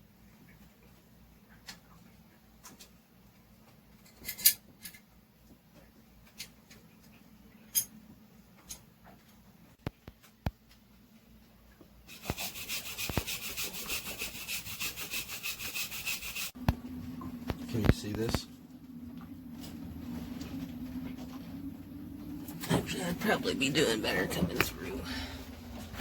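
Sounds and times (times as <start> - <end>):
fast scraping on hard surface: 12.1 - 16.6.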